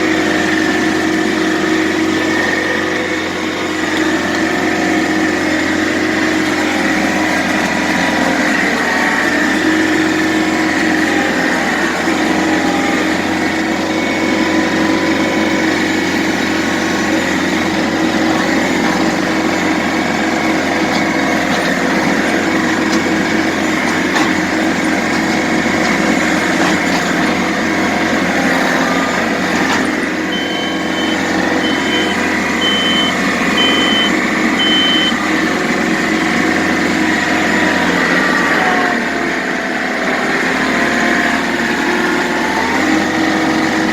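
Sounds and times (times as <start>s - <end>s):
diesel engine running: 0.0s - 43.9s
reversing alarm beeping: 30.2s - 35.3s.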